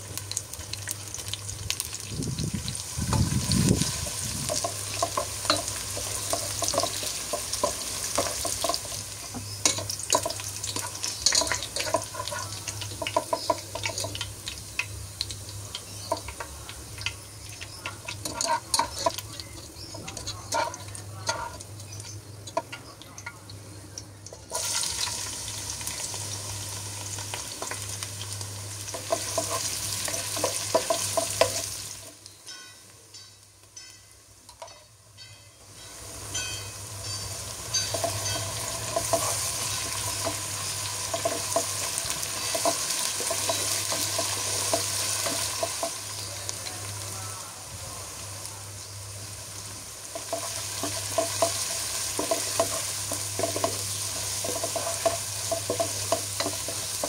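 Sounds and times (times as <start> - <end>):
onions sizzling in hot oil: 0.0 - 57.0
utensil scraping a pan: 17.0 - 22.7.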